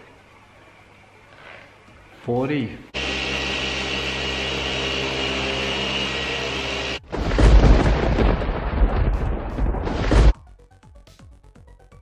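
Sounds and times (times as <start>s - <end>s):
machine polisher whine: 3.0s - 7.0s.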